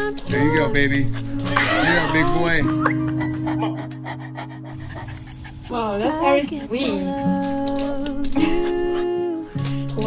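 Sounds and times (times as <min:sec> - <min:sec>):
background music low notes: 0:00.0 - 0:10.0
dog panting: 0:02.0 - 0:06.8, 0:08.4 - 0:09.5.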